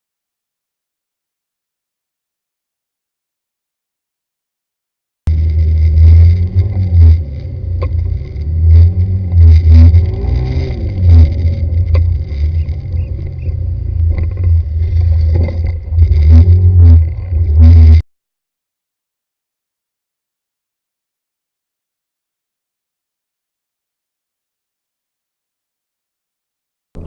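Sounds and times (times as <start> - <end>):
car engine revving: 5.3 - 18.0.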